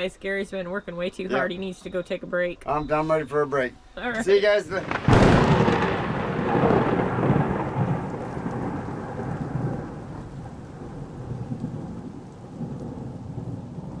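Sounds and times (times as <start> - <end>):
loud boom: 4.7 - 9.6.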